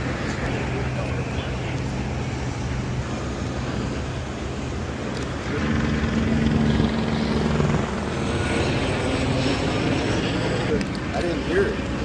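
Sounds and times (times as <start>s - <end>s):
engine hum: 0.0s - 12.0s
low rumble: 5.4s - 10.7s.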